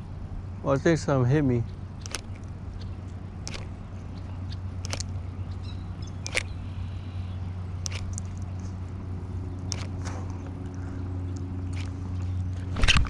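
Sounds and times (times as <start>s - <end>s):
electric boat motor humming: 1.7s - 13.0s
short sharp clicks: 2.0s - 2.5s, 3.4s - 3.8s, 4.5s - 5.2s, 6.0s - 7.0s, 7.8s - 8.6s, 9.6s - 12.1s.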